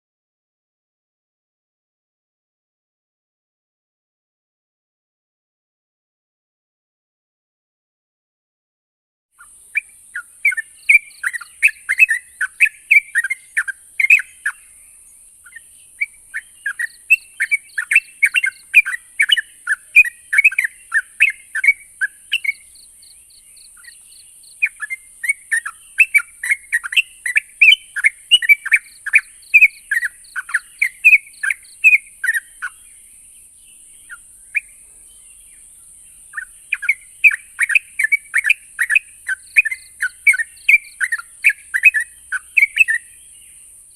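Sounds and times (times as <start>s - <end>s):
bird chirping song: 9.4s - 43.9s.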